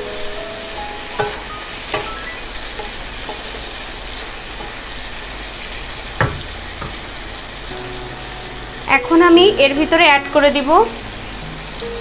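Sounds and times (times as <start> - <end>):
food sizzling in a pan: 0.0 - 12.0
spatula knocking against pan: 6.2 - 7.0.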